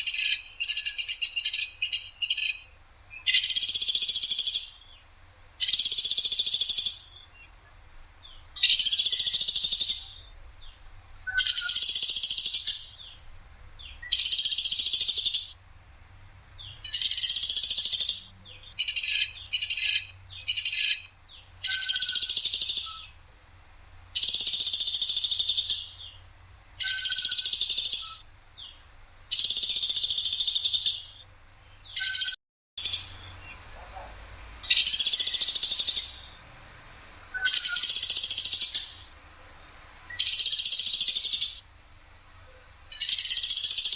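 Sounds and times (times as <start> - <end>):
woodpecker rattling trill: 0.0 - 4.9, 5.6 - 7.1, 8.6 - 10.3, 11.3 - 13.0, 14.0 - 15.6, 16.9 - 23.1, 26.8 - 28.2, 32.0 - 36.4, 37.2 - 39.2, 40.1 - 41.7, 42.9 - 43.9.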